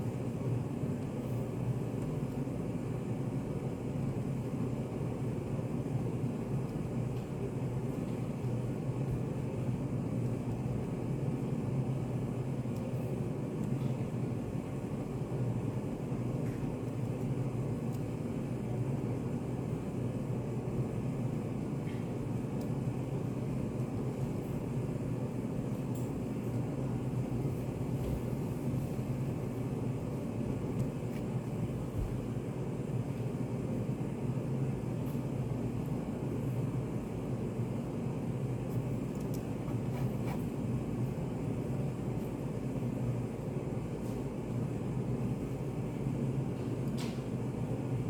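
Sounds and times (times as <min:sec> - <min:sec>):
cafe background hum: 0:00.0 - 0:48.0
low rumbling white noise: 0:00.0 - 0:48.0.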